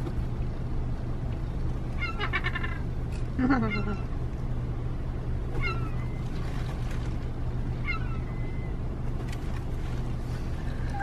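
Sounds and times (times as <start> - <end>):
steady low hum: 0.0 - 11.0
seagull crying: 2.0 - 4.2, 5.5 - 6.4, 7.8 - 8.9.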